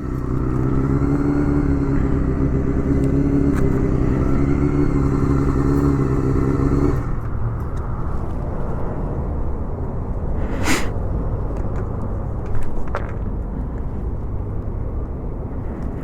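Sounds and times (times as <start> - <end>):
motorcycle engine idling: 0.0 - 8.9.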